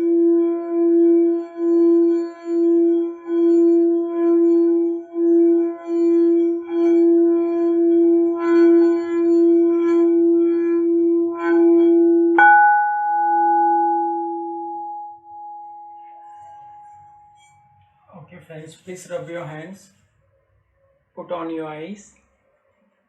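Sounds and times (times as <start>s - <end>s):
higher-pitched bowl ringing: 0.0s - 17.8s
singing bowl low hum: 0.0s - 17.8s.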